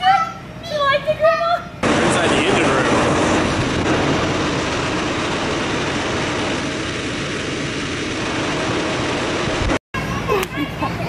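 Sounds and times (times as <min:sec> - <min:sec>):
engine room machinery din: 0:01.8 - 0:10.3.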